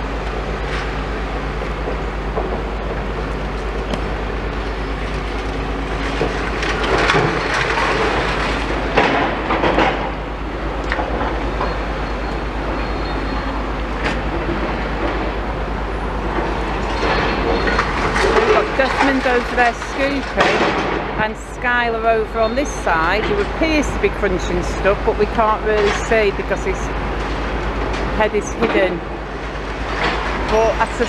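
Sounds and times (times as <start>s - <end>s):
diesel excavator engines running: 0.0s - 31.0s
debris crunching and clanking: 4.8s - 10.2s, 16.3s - 21.3s.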